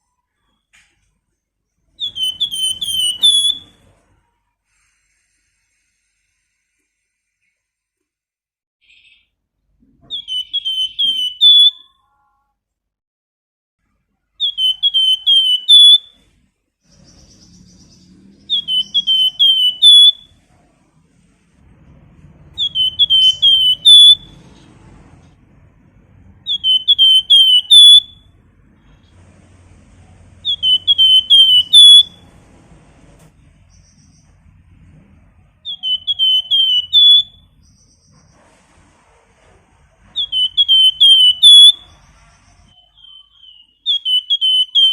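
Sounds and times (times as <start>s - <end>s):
songbird whistling a phrase: 2.0s - 3.7s, 10.1s - 12.0s, 14.4s - 16.1s, 17.0s - 20.3s, 22.6s - 24.4s, 26.4s - 28.3s, 30.4s - 32.2s, 35.6s - 37.4s, 40.2s - 41.9s, 42.8s - 44.9s.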